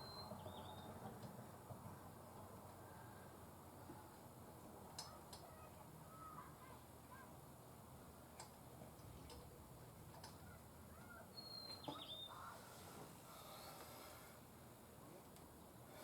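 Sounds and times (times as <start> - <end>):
faint bird chirps: 0.0 - 0.9, 10.4 - 12.8.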